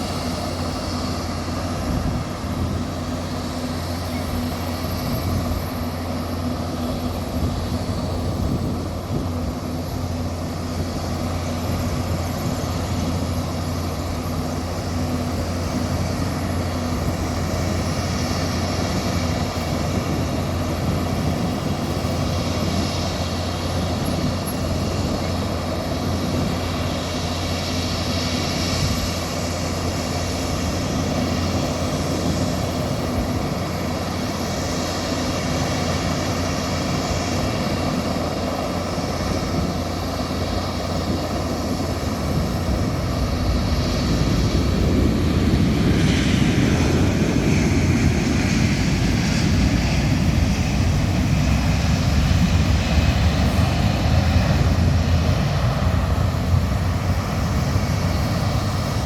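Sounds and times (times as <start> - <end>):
aircraft turbine engines whining: 0.0 - 59.0.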